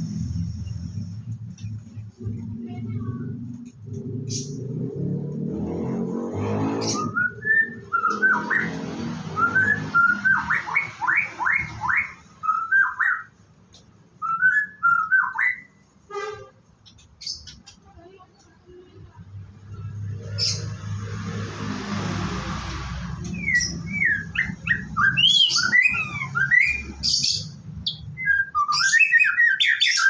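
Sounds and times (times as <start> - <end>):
bird singing whistled notes: 6.8 - 8.8, 9.4 - 13.3, 14.2 - 15.8, 23.3 - 30.0.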